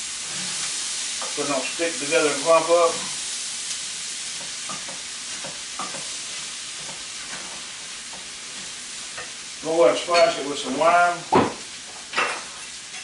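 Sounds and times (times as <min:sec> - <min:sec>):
pasta sizzling in grease: 0:00.0 - 0:13.0.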